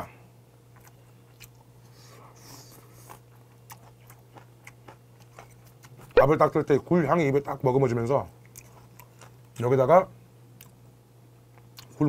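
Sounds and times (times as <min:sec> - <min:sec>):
mouth clicks and smacks chewing: 0:03.0 - 0:06.2.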